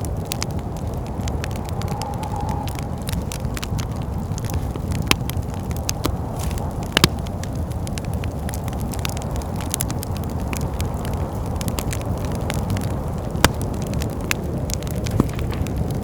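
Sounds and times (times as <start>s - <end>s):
low rumble of wind: 0.0s - 16.0s
wood fire crackling and popping: 0.0s - 16.0s.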